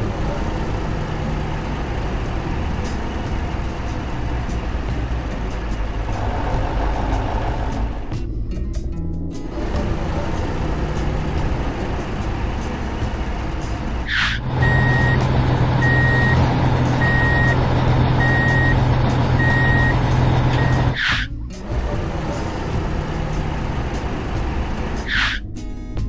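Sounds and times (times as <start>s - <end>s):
truck engine running: 0.0s - 25.4s
truck reversing alarm beeping: 14.3s - 21.3s.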